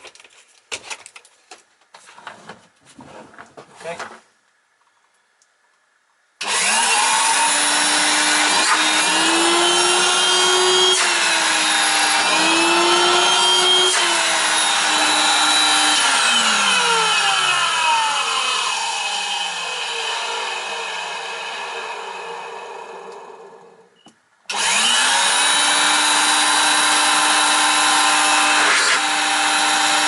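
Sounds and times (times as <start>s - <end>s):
vacuum cleaner motor whining: 6.4s - 23.8s, 24.5s - 30.0s.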